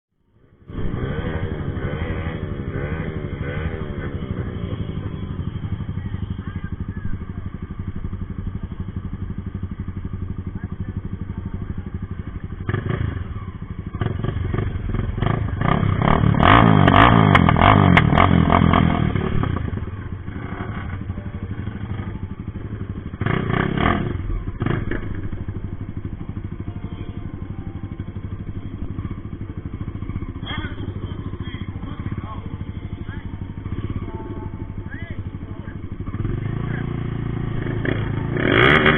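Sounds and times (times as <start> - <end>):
motorcycle engines idling and revving: 0.2 - 38.9
sharp exhaust pops: 16.0 - 19.7.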